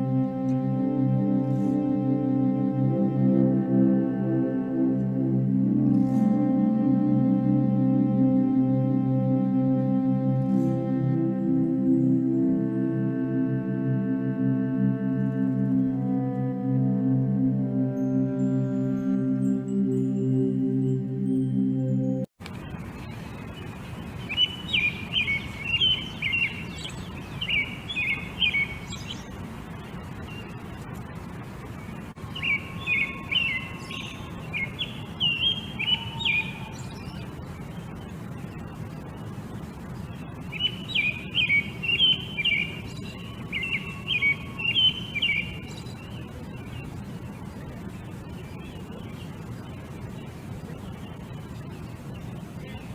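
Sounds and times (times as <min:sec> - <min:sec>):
songbird singing high notes: 0:24.2 - 0:29.4, 0:32.2 - 0:52.9.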